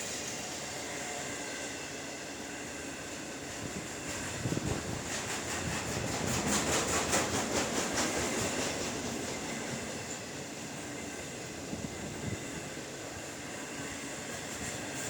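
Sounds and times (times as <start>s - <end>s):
train rumble: 0.0s - 15.0s
train wheels clicking over rail joints: 3.4s - 15.0s.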